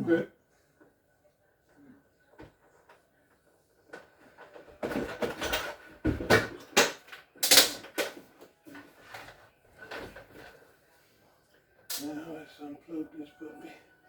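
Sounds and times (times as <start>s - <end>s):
hard objects clattering and knocking: 3.9s - 8.3s.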